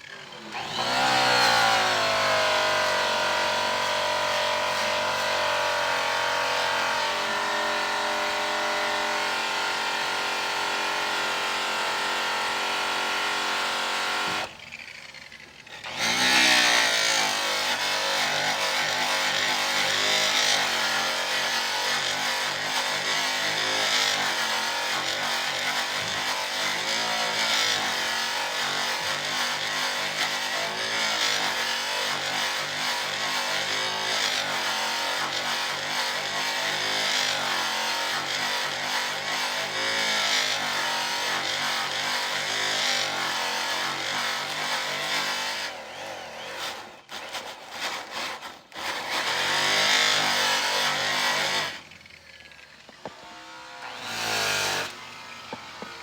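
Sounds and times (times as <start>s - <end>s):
electric polisher motor whine: 0.0s - 14.6s, 15.5s - 18.4s, 51.2s - 56.0s.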